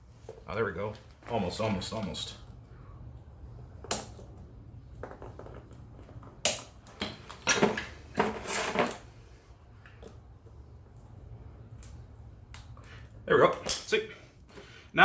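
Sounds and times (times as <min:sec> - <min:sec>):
metal parts clanking and rattling: 0:05.0 - 0:09.1.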